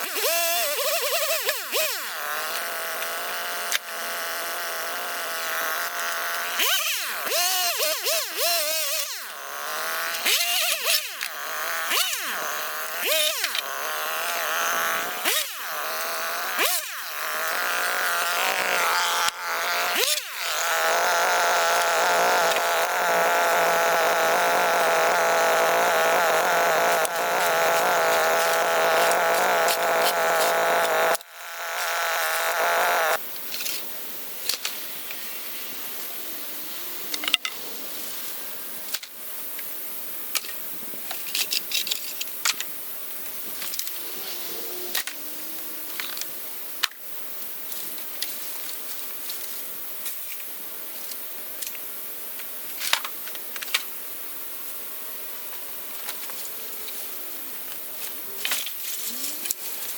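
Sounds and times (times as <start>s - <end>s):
two-stroke power tool engine: 0.0s - 33.2s.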